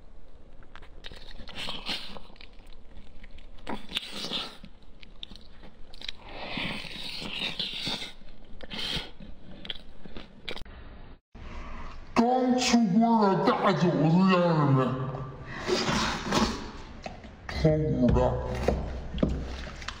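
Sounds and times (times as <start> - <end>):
chewing meat and bun: 0.0 - 10.6.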